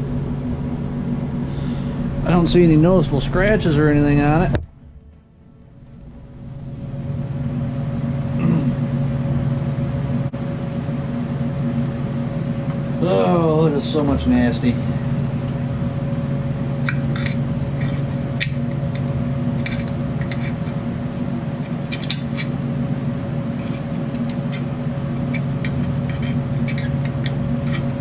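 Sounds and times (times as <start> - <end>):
steady machine hum: 0.0 - 28.0
light scrapes and clicks: 25.3 - 28.0.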